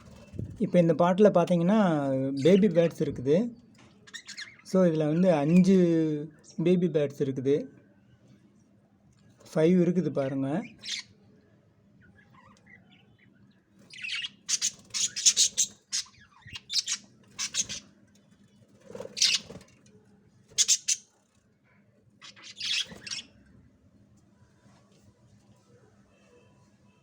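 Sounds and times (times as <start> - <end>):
bird chicks chirping: 4.0 - 5.8, 10.8 - 11.2, 12.0 - 18.0, 18.9 - 19.7, 20.5 - 21.2, 22.2 - 23.4.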